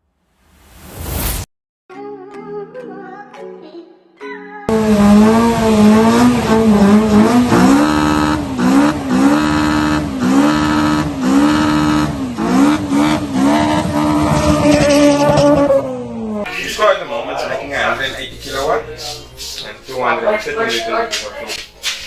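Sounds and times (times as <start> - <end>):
car engine at high revs: 4.7 - 16.5.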